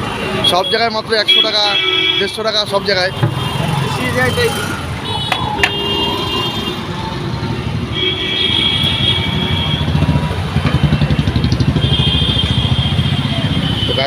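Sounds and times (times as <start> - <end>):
roadside traffic: 0.0 - 14.0
vehicle engine pulsing: 9.3 - 13.6.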